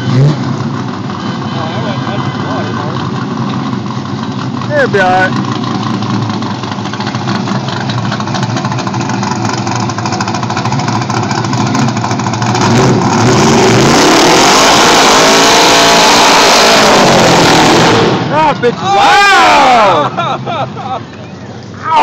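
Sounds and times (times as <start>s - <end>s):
car engine revving hard: 10.6s - 18.5s.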